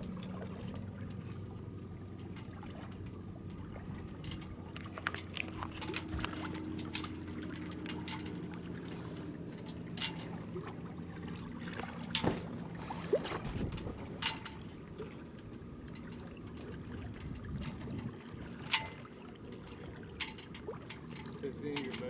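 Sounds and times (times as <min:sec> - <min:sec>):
water lapping against hull: 0:00.0 - 0:22.0
short splashes: 0:04.7 - 0:15.4.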